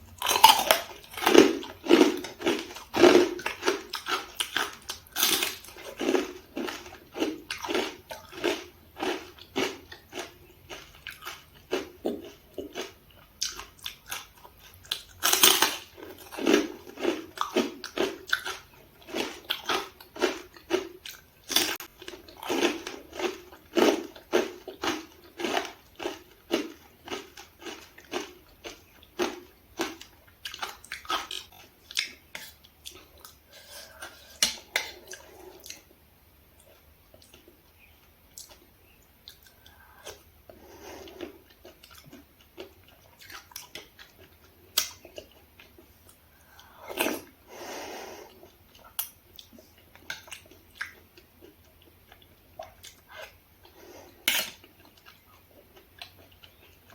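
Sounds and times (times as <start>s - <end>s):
wet chewing: 0.2s - 35.9s, 39.2s - 47.3s.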